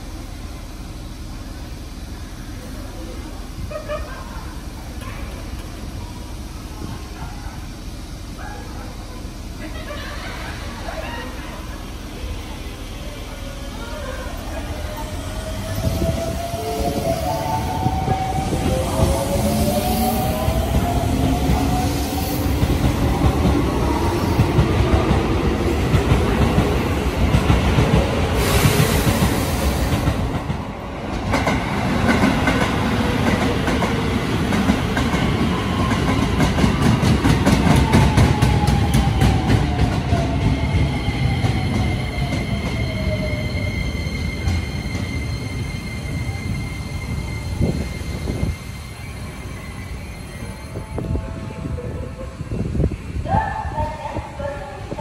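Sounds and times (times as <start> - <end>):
train rumble: 0.0 - 55.0
high squeal: 40.8 - 51.2.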